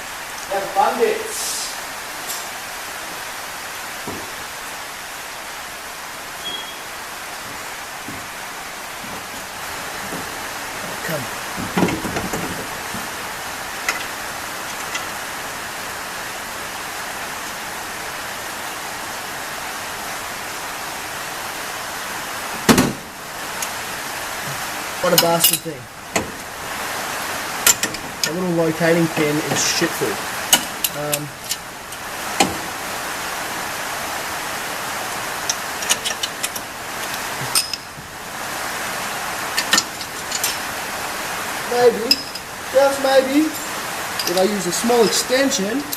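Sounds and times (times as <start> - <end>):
rain falling: 0.0 - 45.9
steady hiss: 0.0 - 45.9
metal tools clicking and clinking: 2.3 - 2.5, 13.8 - 15.2, 25.1 - 25.7, 27.6 - 28.4, 35.4 - 37.9, 39.6 - 40.7, 42.1 - 42.5, 43.4 - 45.9.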